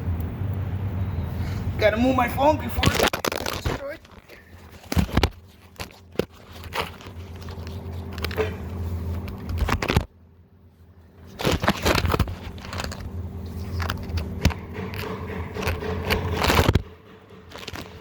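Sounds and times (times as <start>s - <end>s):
steady low hum: 0.0s - 18.0s
tools knocking and scraping: 3.4s - 9.6s, 13.7s - 18.0s.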